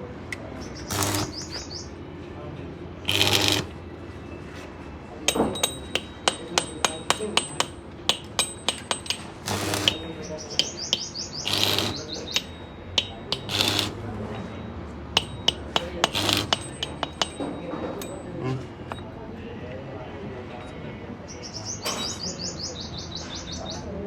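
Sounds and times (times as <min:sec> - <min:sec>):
metal tools tapping on metal: 0:00.9 - 0:01.6, 0:03.1 - 0:03.8, 0:05.2 - 0:19.0.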